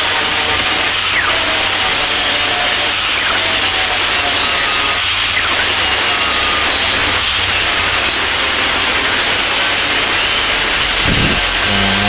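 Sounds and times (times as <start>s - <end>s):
power tool cutting wood: 10.4s - 12.0s.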